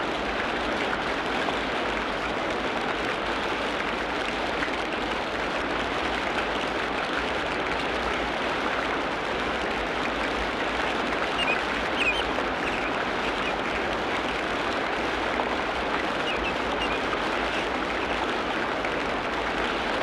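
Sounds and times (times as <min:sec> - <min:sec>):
rain on foliage: 0:00.0 - 0:20.0
short high animal calls: 0:11.4 - 0:13.6.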